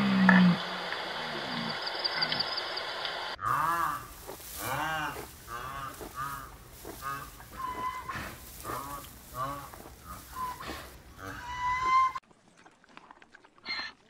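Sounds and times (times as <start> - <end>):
faint deer calls: 3.4 - 12.2
rhinoceros calls: 3.4 - 12.2.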